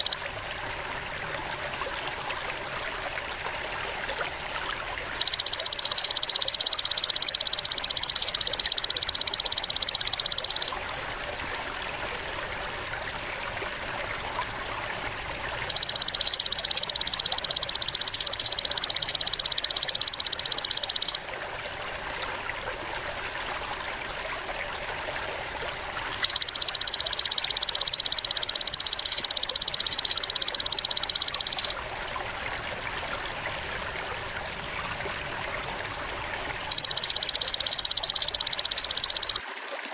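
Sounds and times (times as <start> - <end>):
trickling stream: 0.0 - 39.9
insect trilling buzz: 26.2 - 31.7, 36.7 - 39.4.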